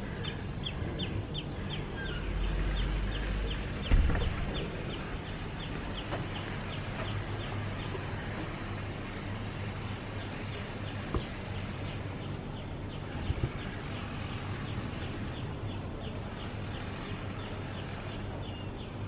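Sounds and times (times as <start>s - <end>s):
bird chirping: 0.0s - 19.0s
low outdoor rumble: 0.0s - 19.0s
thump: 3.9s - 4.5s.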